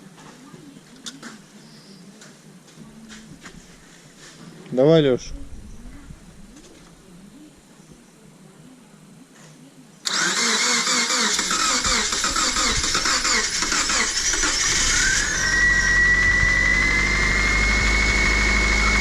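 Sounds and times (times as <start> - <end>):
starter motor cranking engine: 10.1 - 19.0
car engine running whine: 11.3 - 19.0.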